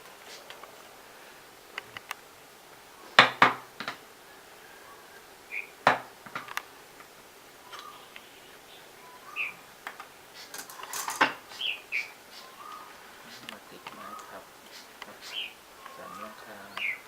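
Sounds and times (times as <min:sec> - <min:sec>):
loud knocks on work table: 0:03.2 - 0:04.0, 0:05.8 - 0:06.5
wooden parts clicking: 0:03.2 - 0:04.1, 0:05.8 - 0:08.3, 0:09.8 - 0:11.7.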